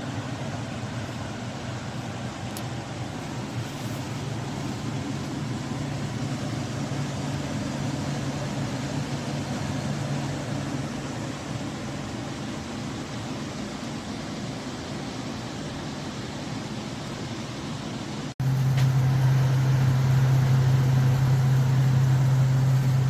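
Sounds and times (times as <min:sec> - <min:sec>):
air conditioner fan rushing: 0:00.0 - 0:23.0
low hum: 0:18.4 - 0:23.0.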